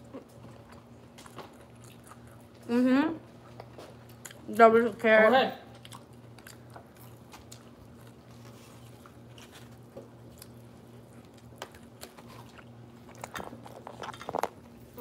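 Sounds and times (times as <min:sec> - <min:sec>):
person biting and chewing food: 0:00.0 - 0:02.6, 0:05.8 - 0:15.0
low steady hum: 0:00.0 - 0:15.0.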